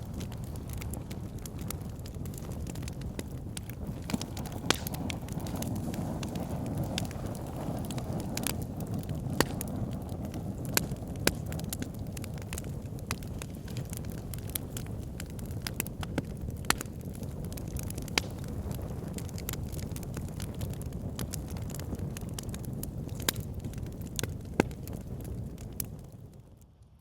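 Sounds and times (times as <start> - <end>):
fire crackling and popping: 0.0 - 27.0.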